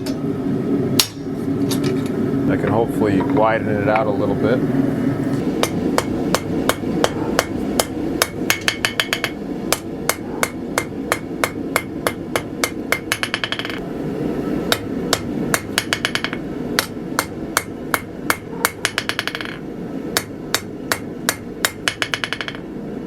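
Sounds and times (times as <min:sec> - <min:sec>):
hammer striking steel on anvil: 0:01.0 - 0:01.3, 0:05.6 - 0:13.8, 0:14.7 - 0:19.6, 0:20.2 - 0:22.6.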